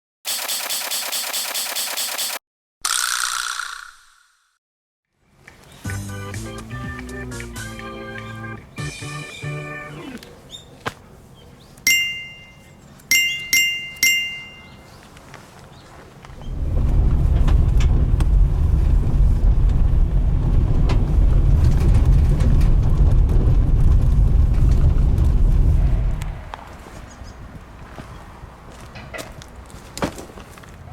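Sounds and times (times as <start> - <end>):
ringing chime notes: 11.9 - 14.9
low rumbling with crackles: 16.1 - 26.9.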